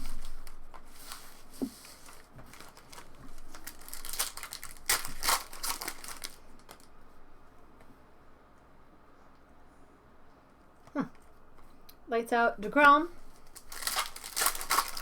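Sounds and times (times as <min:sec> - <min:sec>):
card pack wrappers tearing and crinkling: 0:00.0 - 0:06.9, 0:13.3 - 0:15.0.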